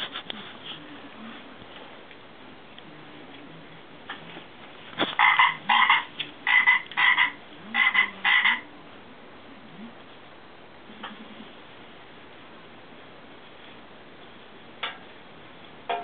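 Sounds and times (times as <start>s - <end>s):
dog toy croaking: 5.2s - 8.6s.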